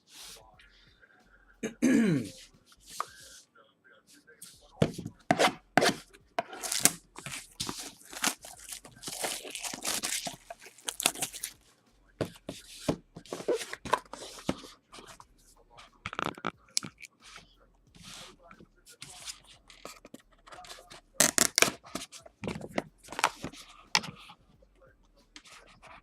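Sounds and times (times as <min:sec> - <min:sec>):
packaging tearing and crinkling: 0:06.6 - 0:11.6.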